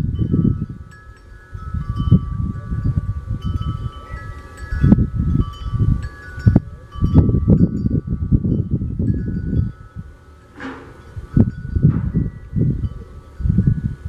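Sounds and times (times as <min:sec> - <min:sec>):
metal wind chimes ringing: 0:00.0 - 0:14.0
sharp knocks: 0:10.6 - 0:11.0.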